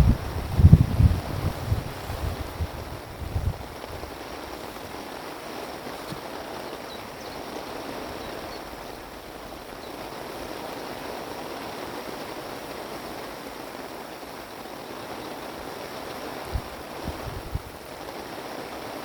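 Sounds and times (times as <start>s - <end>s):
wind rushing: 0.0s - 4.3s, 16.5s - 17.7s.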